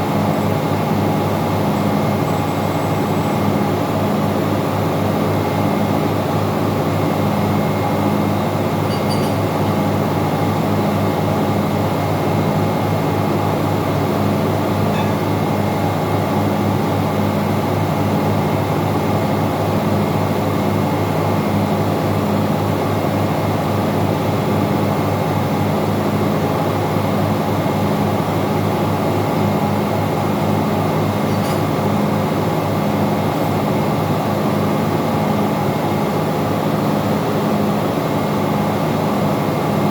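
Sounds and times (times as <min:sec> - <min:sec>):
engine-room machinery drone: 0:00.0 - 0:39.9
thin steady whine: 0:07.8 - 0:11.2.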